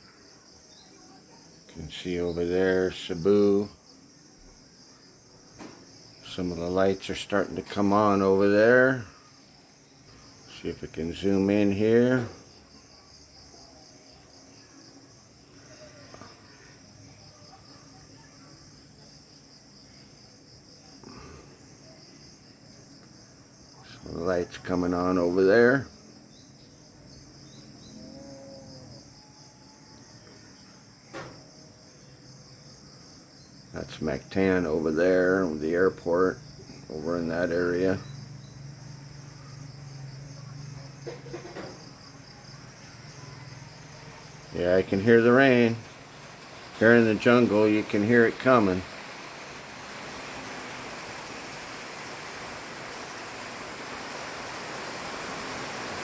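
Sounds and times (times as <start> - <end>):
night insects trilling: 0.0 - 56.0
faint low calls: 42.6 - 56.0.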